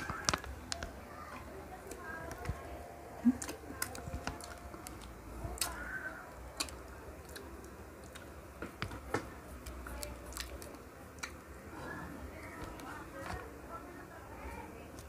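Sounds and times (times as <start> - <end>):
low room hum: 0.0 - 15.0
mouth chewing clicks and smacks: 3.3 - 5.9, 6.5 - 11.4.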